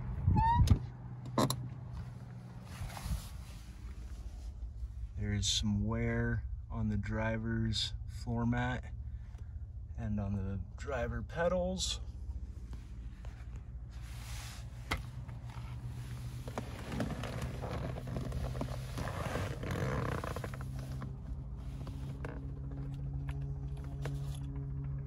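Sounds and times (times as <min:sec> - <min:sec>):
car engine idling: 0:00.9 - 0:25.0
handling clicks and rustles: 0:14.6 - 0:25.0.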